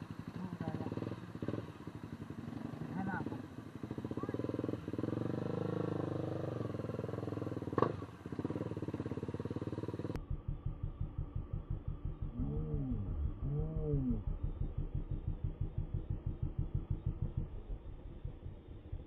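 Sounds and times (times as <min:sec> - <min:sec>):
motorcycle engine running: 0:00.0 - 0:19.0
rapid throbbing pulse: 0:00.0 - 0:19.0.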